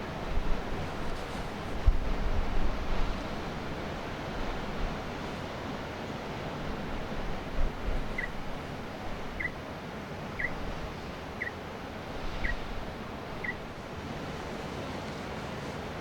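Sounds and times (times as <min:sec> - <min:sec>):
surf: 0:00.0 - 0:16.0
wind: 0:00.0 - 0:16.0
bird chirping: 0:09.4 - 0:09.6, 0:10.4 - 0:10.6, 0:13.4 - 0:13.6.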